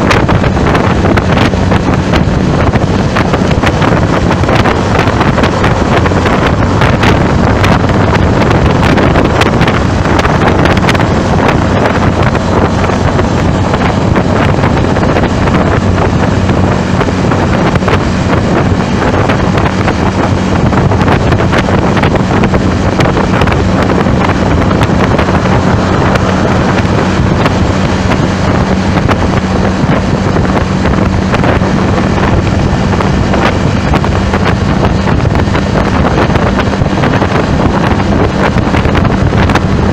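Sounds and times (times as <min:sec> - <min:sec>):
vehicle low hum: 0:00.0 - 0:39.9
wind buffeting microphone: 0:00.0 - 0:39.9.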